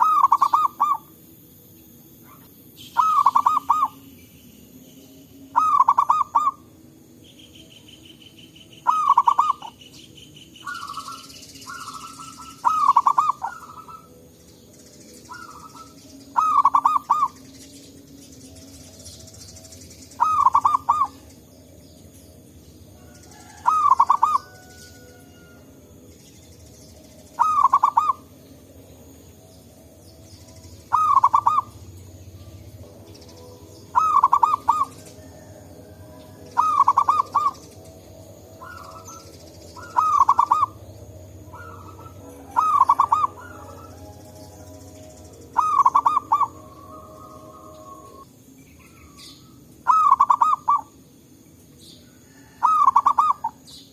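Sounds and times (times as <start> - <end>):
dove cooing: 0.0 - 1.2, 2.2 - 4.1, 5.5 - 6.7, 8.8 - 9.8, 10.6 - 14.3, 15.3 - 17.4, 20.2 - 21.3, 23.0 - 25.6, 27.3 - 28.4, 30.9 - 32.8, 33.9 - 37.8, 38.6 - 48.2, 49.0 - 50.9, 52.3 - 53.6
faint answering bird calls: 0.0 - 1.2, 2.2 - 21.7, 29.9 - 51.0, 51.8 - 53.9.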